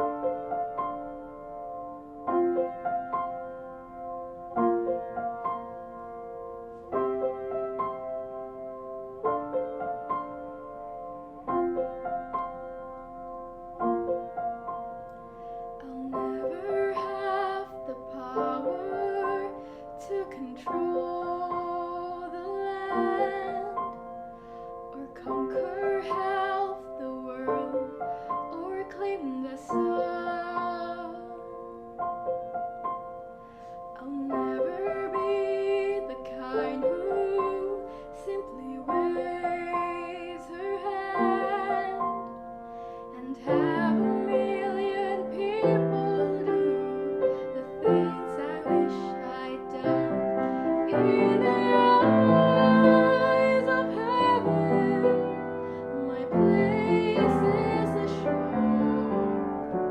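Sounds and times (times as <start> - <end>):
piano accompaniment: 0.0 - 59.9
woman singing: 15.8 - 24.1, 24.9 - 31.8, 33.9 - 42.5, 43.1 - 59.9.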